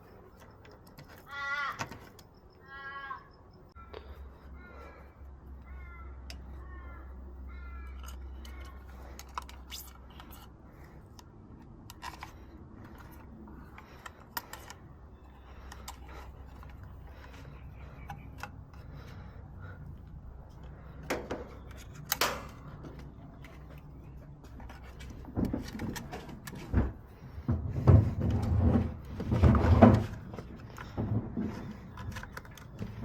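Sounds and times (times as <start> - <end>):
small tools clicking and tapping: 0.3 - 2.4, 7.8 - 18.9, 30.4 - 33.0
bird calling: 1.1 - 9.0
steady low hum: 2.1 - 33.0.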